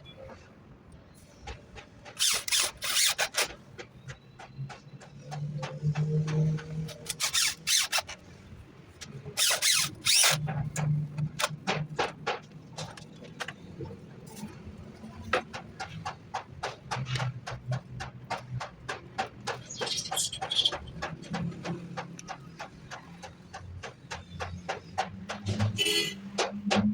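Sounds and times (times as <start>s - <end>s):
rasping strokes on wood: 2.1s - 3.6s.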